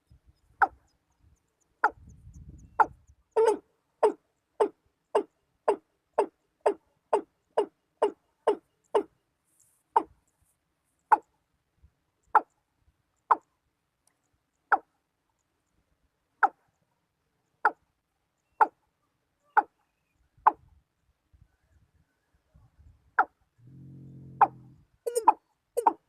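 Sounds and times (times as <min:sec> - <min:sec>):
bird calling with hollow notes: 0:00.0 - 0:09.2, 0:10.0 - 0:10.2, 0:18.4 - 0:18.8, 0:19.4 - 0:20.7, 0:23.2 - 0:26.0.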